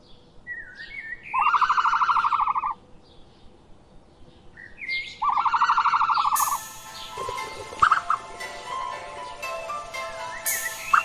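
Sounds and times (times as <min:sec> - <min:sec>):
bird trills: 0:04.6 - 0:11.0
faint high chirps: 0:08.8 - 0:11.0.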